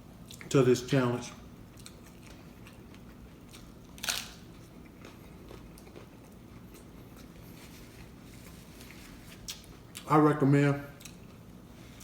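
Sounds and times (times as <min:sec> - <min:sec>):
crunch of biting taco shell: 0:01.8 - 0:06.2.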